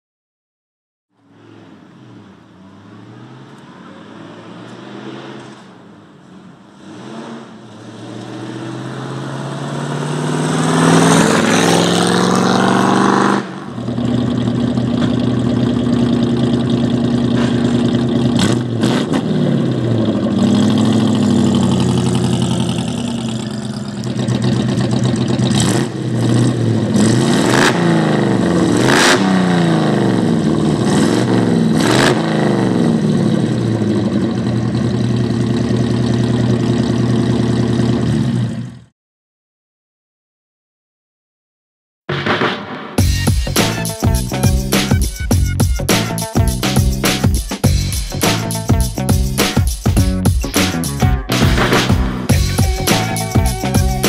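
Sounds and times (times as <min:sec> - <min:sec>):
car engine exhaust revving: 0:06.6 - 0:38.6.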